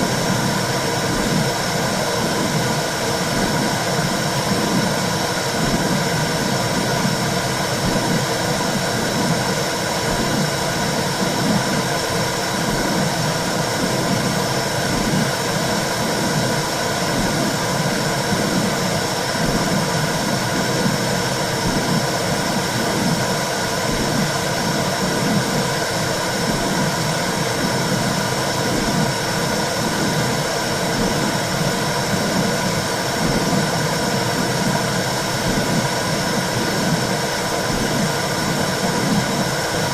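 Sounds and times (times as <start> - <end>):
constant hum: 0.0 - 39.9
low whooshing rush with pulse: 0.0 - 39.9.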